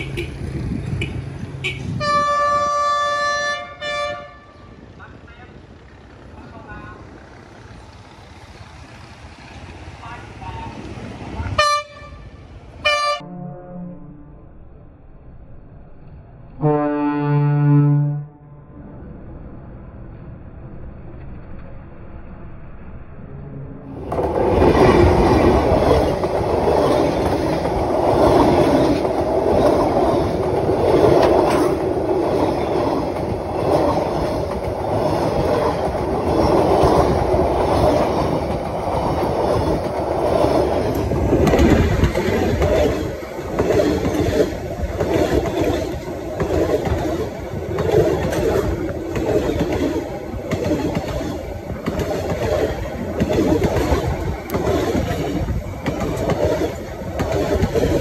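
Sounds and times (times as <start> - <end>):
train wheels rumbling on rails: 0.0 - 12.7, 23.9 - 58.0
wheels clickety-clack: 24.0 - 58.0.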